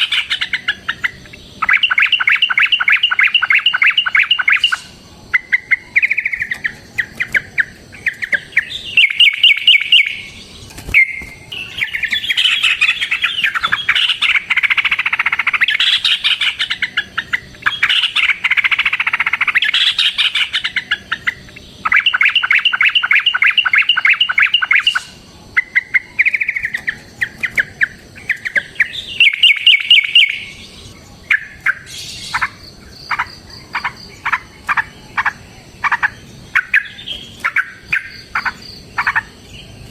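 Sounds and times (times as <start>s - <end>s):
bulbuls trilling: 0.0s - 39.9s.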